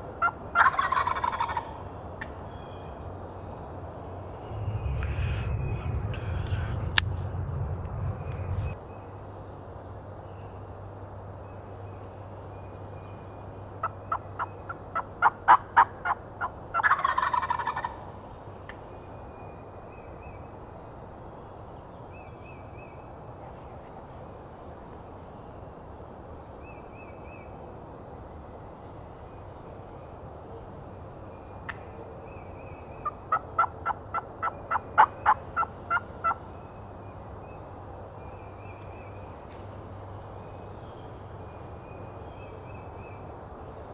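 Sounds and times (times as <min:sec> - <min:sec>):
turkey gobble: 0:00.0 - 0:02.4, 0:13.2 - 0:18.8, 0:31.6 - 0:36.5
wild turkeys calling: 0:00.0 - 0:03.8, 0:08.8 - 0:39.4.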